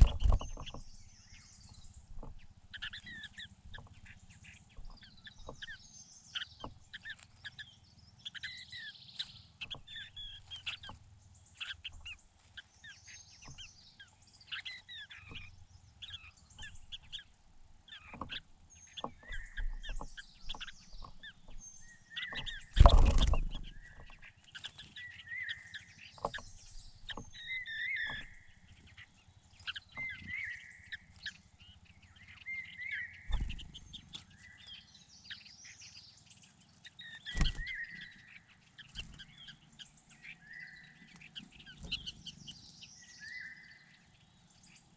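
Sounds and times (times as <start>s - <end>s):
small birds chirping: 0.0s - 44.9s
loud thump: 22.8s - 23.8s.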